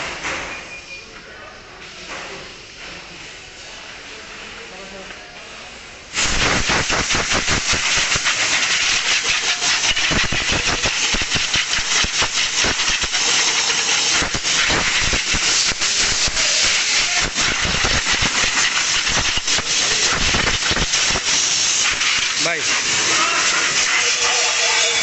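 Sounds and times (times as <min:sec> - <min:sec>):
crackly hissing rush: 0:06.1 - 0:25.0.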